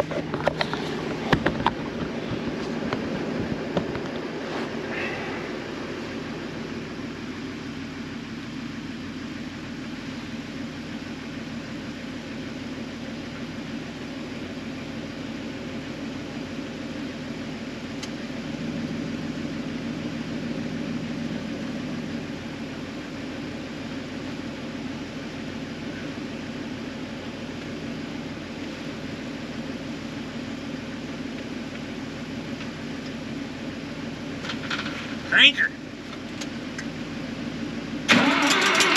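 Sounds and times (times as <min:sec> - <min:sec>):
engine droning at low speed: 0:00.0 - 0:38.9.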